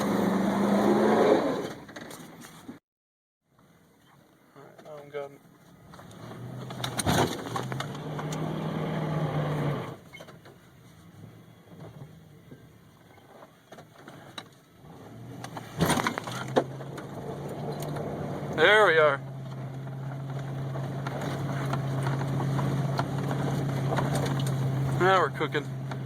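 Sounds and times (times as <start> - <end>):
wrecked metal crunching: 5.8 - 8.5, 15.3 - 26.0
truck engine running under load: 19.2 - 26.0.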